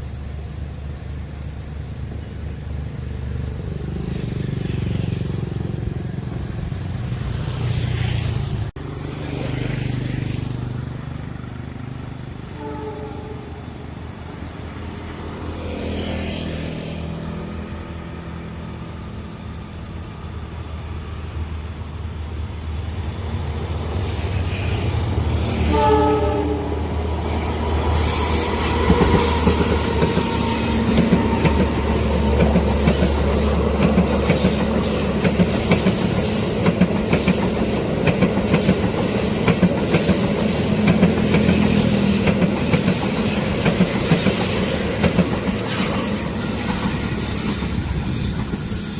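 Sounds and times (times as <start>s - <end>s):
train horn blast: 12.5s - 13.8s, 24.5s - 27.0s, 27.9s - 32.4s
wheels clattering over rail joints: 27.0s - 48.9s
thin high squeal: 27.2s - 33.6s.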